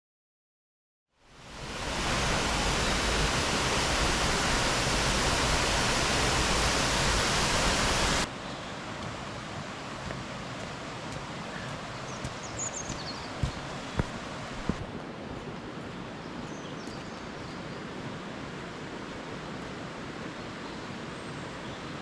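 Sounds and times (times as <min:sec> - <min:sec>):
waterfall roaring: 0:01.2 - 0:16.5.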